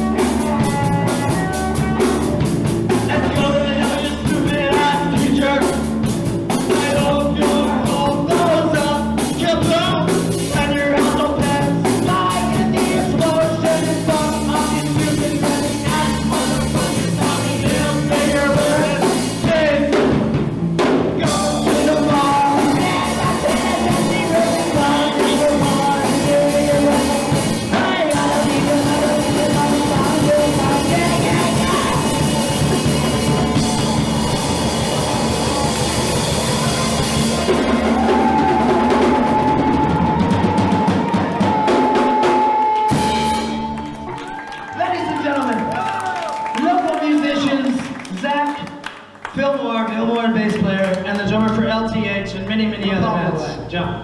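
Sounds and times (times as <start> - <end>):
person singing: 0.0 - 5.9, 6.5 - 20.2, 21.2 - 35.8
punk rock band playing live: 0.0 - 46.5.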